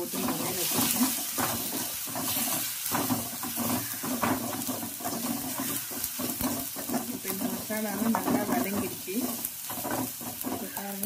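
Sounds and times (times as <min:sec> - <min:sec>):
metal spatula scraping a pan: 0:00.0 - 0:11.0
onion and tomato sizzling in oil: 0:00.0 - 0:11.0.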